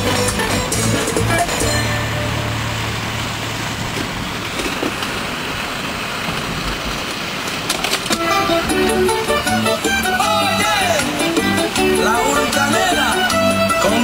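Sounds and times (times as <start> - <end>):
music: 0.0 - 3.2, 8.2 - 14.0
engine humming: 0.0 - 14.0.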